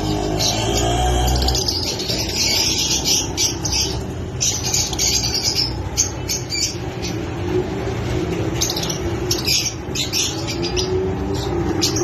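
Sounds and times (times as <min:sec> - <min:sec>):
lovebirds chirping shrill calls: 0:00.0 - 0:07.2.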